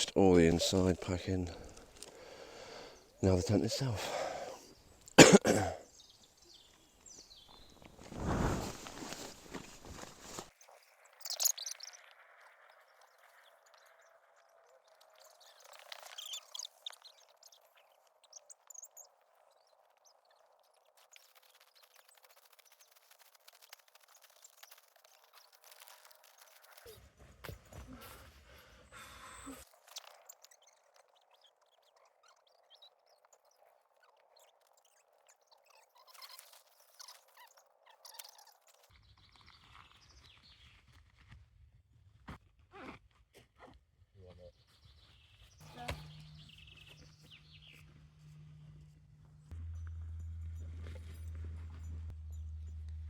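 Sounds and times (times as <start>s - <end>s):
small birds chirping: 0.0s - 5.2s, 5.8s - 41.2s, 44.2s - 53.0s
bird chirps: 10.6s - 23.0s, 44.4s - 53.0s.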